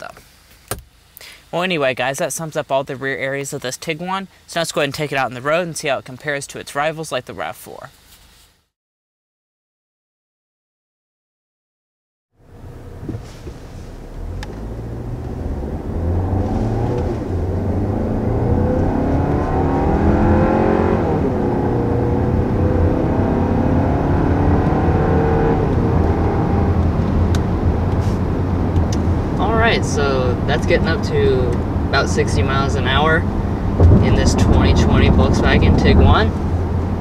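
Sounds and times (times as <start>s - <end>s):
car engine accelerating: 12.4s - 37.0s.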